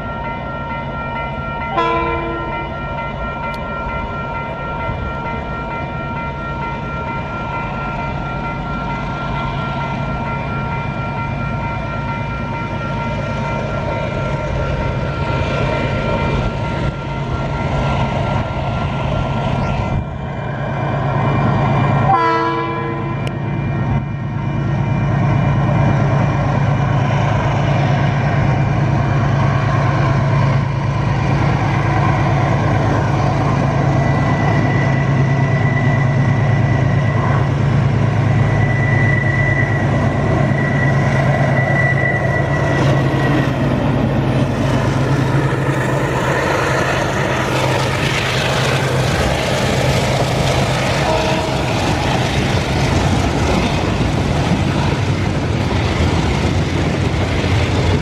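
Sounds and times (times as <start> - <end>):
diesel locomotive engine drone: 0.0 - 58.0
thin high whine: 33.2 - 44.4.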